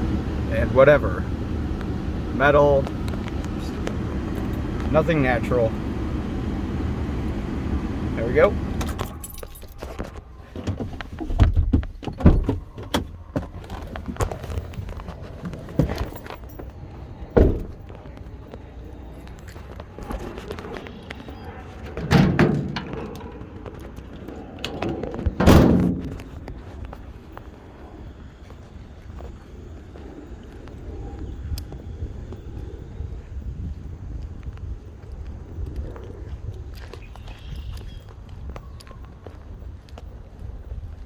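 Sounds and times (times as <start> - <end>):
car door knocks and thuds: 17.4 - 17.8, 25.3 - 26.3.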